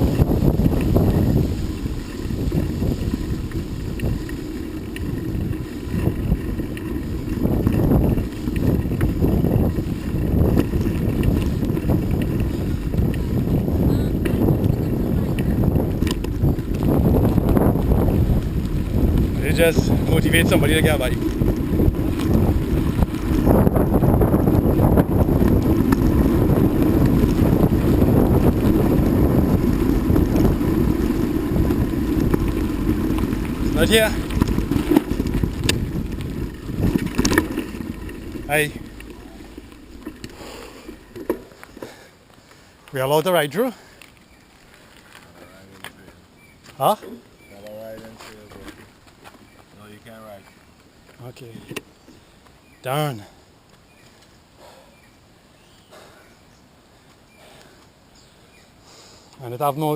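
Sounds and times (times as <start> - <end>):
vehicle running noise: 0.0 - 41.8
wind buffeting microphone: 0.0 - 57.8.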